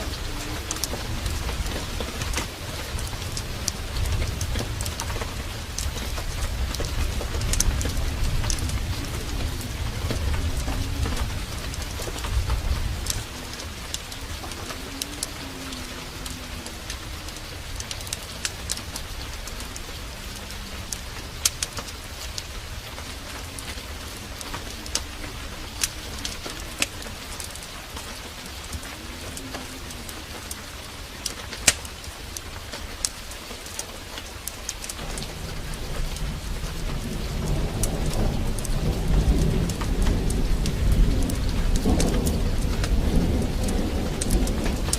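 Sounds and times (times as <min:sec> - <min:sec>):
dove cooing: 0:00.0 - 0:33.0
heavy rain pouring: 0:00.0 - 0:44.9
low thunder rumbles: 0:00.0 - 0:44.9
sharp crackles: 0:00.0 - 0:44.9.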